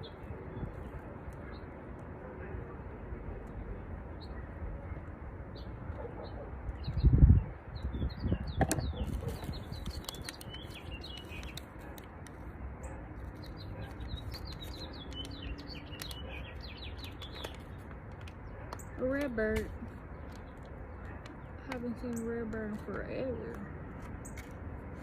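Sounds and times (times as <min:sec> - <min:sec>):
small birds chirping: 0:02.9 - 0:24.5
clicks and rustles: 0:08.6 - 0:25.0.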